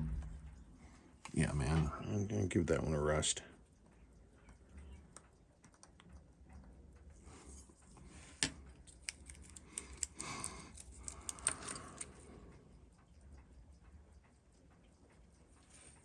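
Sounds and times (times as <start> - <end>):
metallic clicks of small tools: 8.7 - 12.2.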